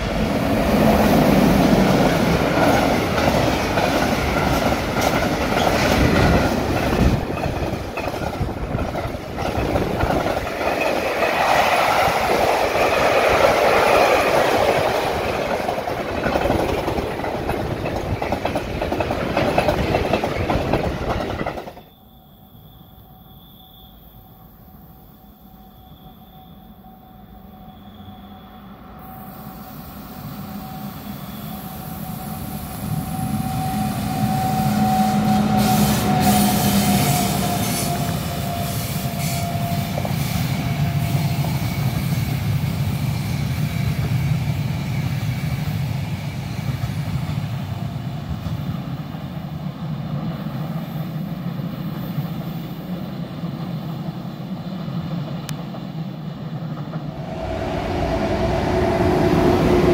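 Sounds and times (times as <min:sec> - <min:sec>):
train rolling past: 0:00.0 - 0:59.9
locomotive high whine: 0:23.9 - 0:44.1, 0:56.4 - 0:59.9.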